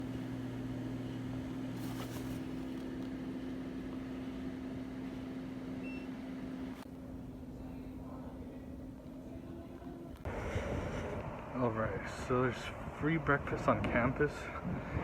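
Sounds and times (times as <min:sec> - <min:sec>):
microwave oven humming: 0:00.0 - 0:10.3.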